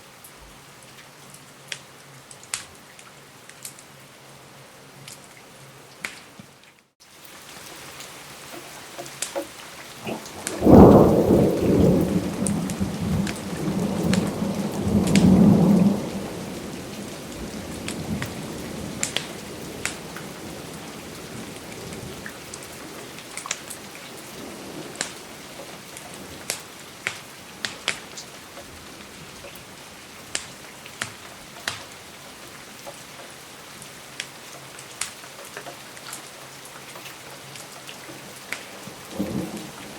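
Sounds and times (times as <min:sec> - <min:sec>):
steady rain: 0:00.0 - 0:39.9
sharp ticks and pops: 0:08.5 - 0:09.5, 0:19.0 - 0:20.0, 0:25.0 - 0:25.2, 0:30.3 - 0:31.9, 0:35.0 - 0:36.2
rolling thunder: 0:10.0 - 0:23.2, 0:38.9 - 0:39.9.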